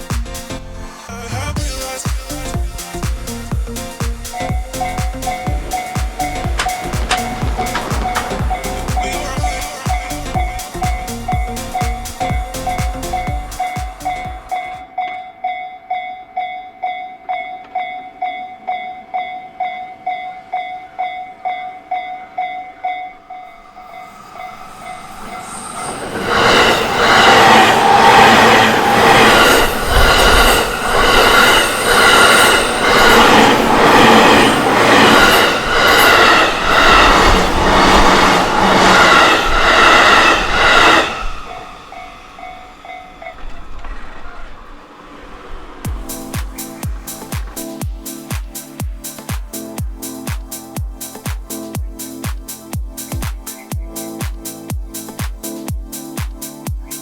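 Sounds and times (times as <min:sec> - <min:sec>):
electric train passing: 0:00.0 - 0:57.0
level crossing warning bell: 0:04.3 - 0:43.8
wheels clattering over rail joints: 0:04.8 - 0:09.6.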